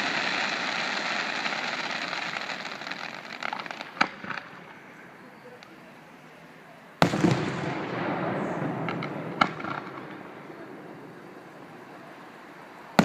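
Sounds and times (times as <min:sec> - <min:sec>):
small firework pops: 0:00.0 - 0:04.8, 0:07.0 - 0:10.6
crackling rumble: 0:00.0 - 0:13.0.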